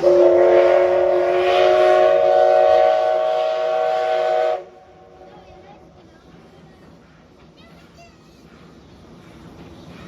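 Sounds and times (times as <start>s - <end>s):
steam whistle blast: 0.0s - 4.8s.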